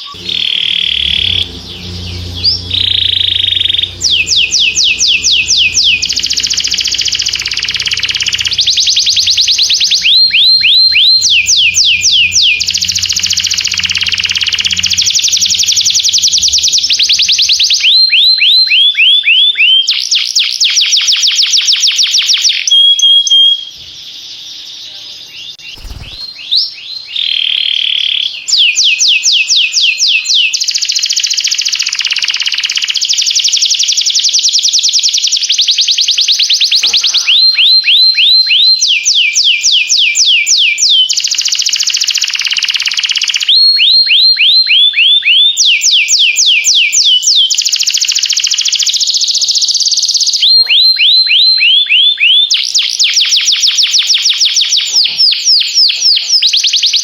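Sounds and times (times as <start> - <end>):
canary singing rapid trills: 0.0 - 17.7, 25.6 - 27.1, 36.8 - 38.0.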